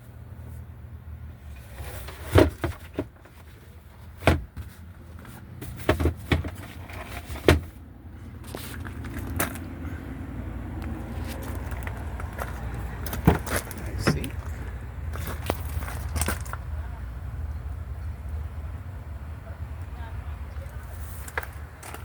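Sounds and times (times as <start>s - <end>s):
sharp clunks and knocks: 11.7s - 14.6s.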